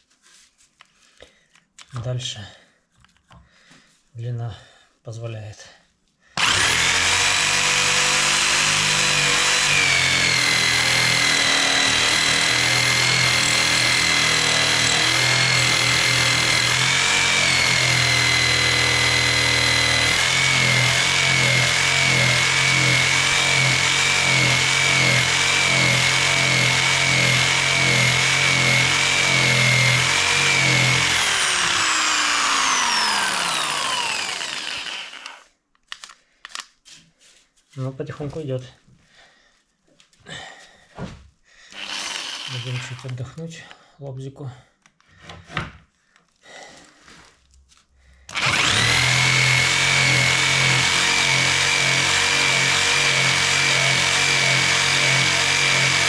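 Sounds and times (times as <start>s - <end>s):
electric jigsaw cutting wood: 6.4s - 35.5s, 41.7s - 43.2s, 48.3s - 56.0s.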